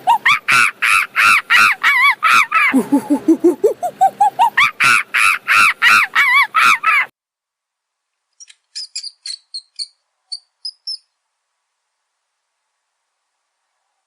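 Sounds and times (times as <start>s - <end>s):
bird calling harshly: 0.0s - 7.1s.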